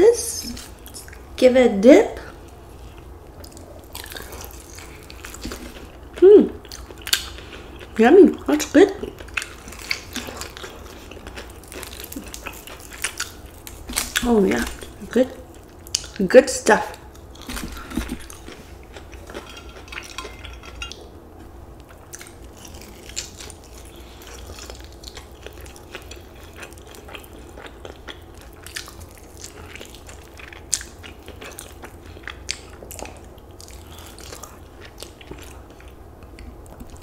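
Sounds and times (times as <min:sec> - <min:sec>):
chewing and biting chicken: 0:03.4 - 0:08.0, 0:21.8 - 0:37.0.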